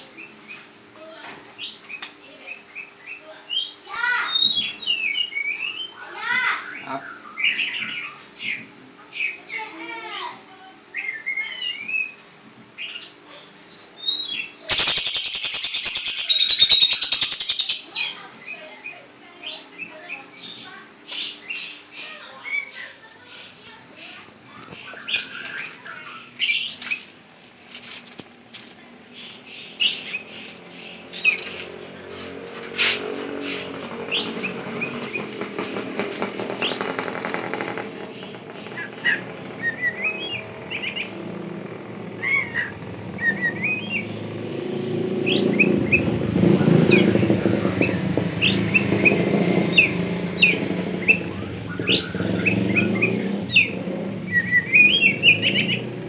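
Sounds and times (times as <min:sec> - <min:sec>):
songbird chirping: 0:01.6 - 0:12.2, 0:12.8 - 0:27.1, 0:33.9 - 0:56.0
low background rumble: 0:34.1 - 0:56.0.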